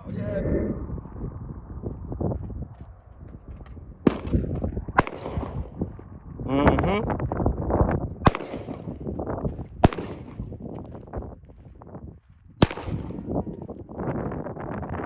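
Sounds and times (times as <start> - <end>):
gunshots: 4.0 - 5.7, 8.2 - 8.9.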